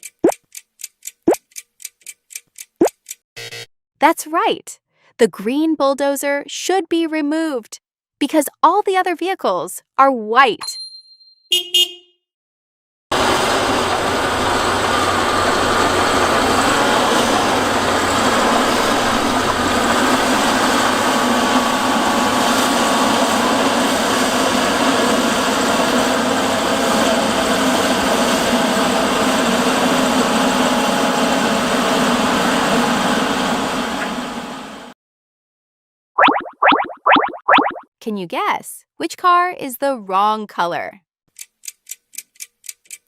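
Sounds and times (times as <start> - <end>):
construction vehicle engine running: 13.1 - 34.9.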